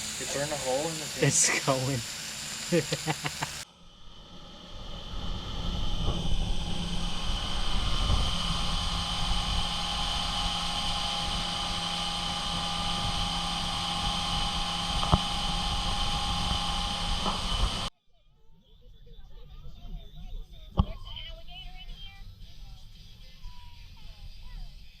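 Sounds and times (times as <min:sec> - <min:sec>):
furnace blower roaring: 0:00.0 - 0:17.9.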